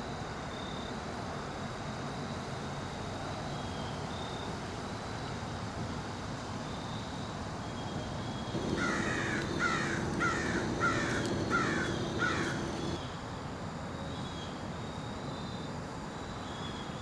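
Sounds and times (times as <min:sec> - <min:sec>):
faint steady hum: 0:00.1 - 0:14.0
bird calling: 0:08.5 - 0:13.0.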